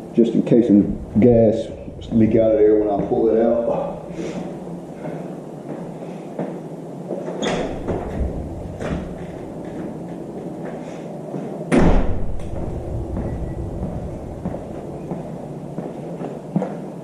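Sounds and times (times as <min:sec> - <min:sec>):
door slamming shut: 0:07.4 - 0:09.2, 0:11.7 - 0:14.6.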